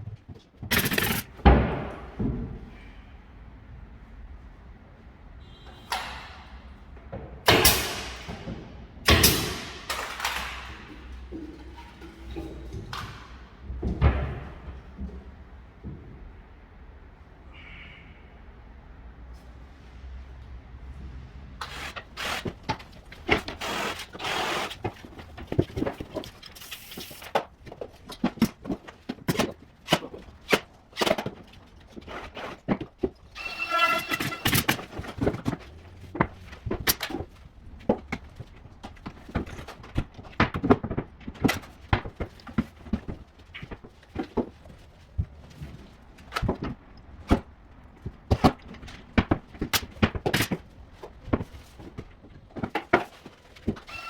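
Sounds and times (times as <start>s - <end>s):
brief pitched squeal: 33.4s - 34.6s.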